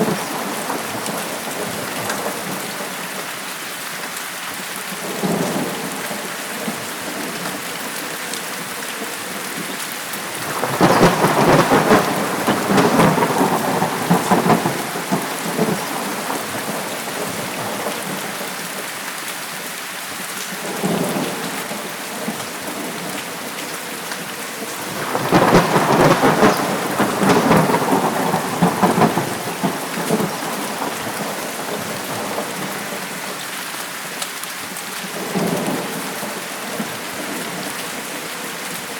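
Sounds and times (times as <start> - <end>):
heavy rain: 0.0 - 38.9
thunder rumbling: 10.2 - 18.4, 24.6 - 33.2.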